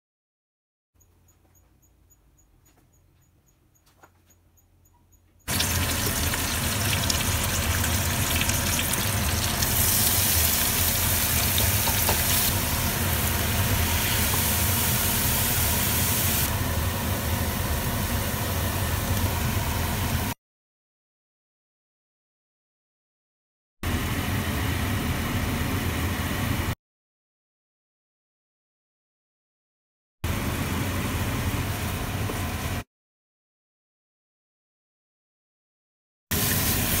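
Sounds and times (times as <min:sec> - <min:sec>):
food frying in hot oil: 0:05.5 - 0:20.3, 0:36.3 - 0:37.0.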